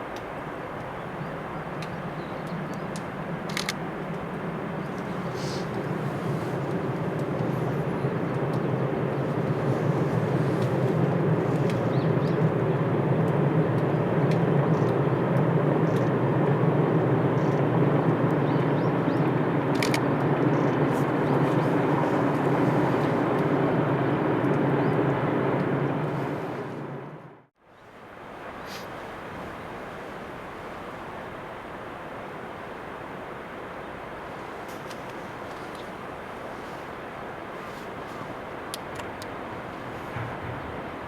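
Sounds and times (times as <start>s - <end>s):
faint clicks: 1.8s - 5.9s
train running: 34.2s - 41.0s.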